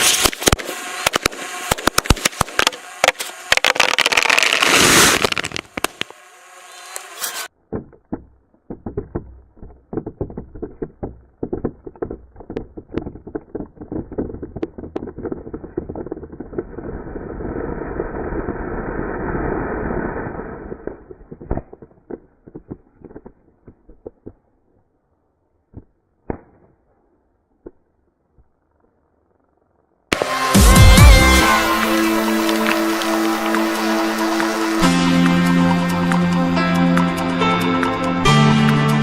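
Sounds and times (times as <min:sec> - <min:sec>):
firecrackers banging in plastic bottle: 0:00.0 - 0:06.1, 0:31.2 - 0:34.6
firecracker hissing burst: 0:00.0 - 0:06.2, 0:16.8 - 0:20.9, 0:30.1 - 0:35.6.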